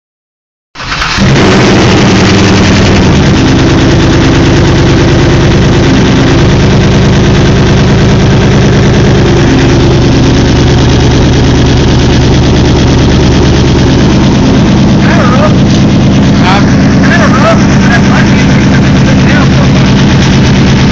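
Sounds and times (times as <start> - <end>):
engine idling loudly: 0.8 - 20.9.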